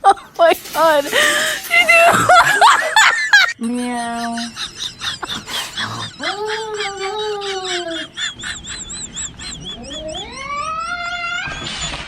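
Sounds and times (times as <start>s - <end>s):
high warbling whistle: 4.6s - 12.0s
cartoon cat-like wailing cries: 5.8s - 12.0s.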